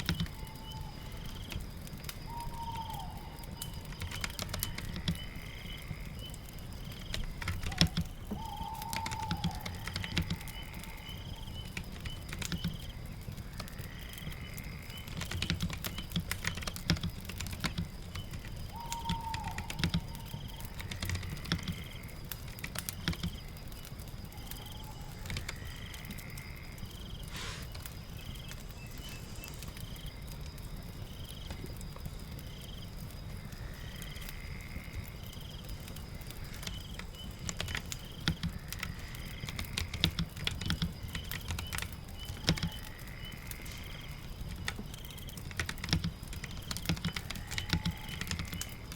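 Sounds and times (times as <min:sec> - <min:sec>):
typing on computer keyboard: 0:00.0 - 0:00.4, 0:03.9 - 0:05.2, 0:07.0 - 0:10.7, 0:11.5 - 0:12.9, 0:15.0 - 0:23.4, 0:24.5 - 0:25.7, 0:36.6 - 0:42.9, 0:44.5 - 0:48.8
rain patter: 0:00.0 - 0:48.9.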